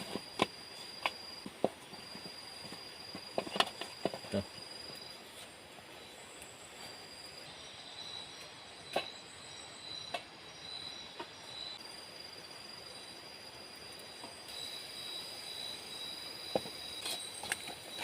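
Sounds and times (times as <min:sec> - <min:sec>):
high-pitched insect drone: 0:06.8 - 0:18.0.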